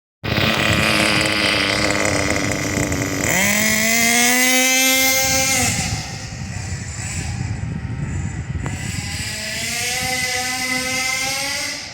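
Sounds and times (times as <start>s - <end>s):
nitro engine revving: 0.2s - 11.9s.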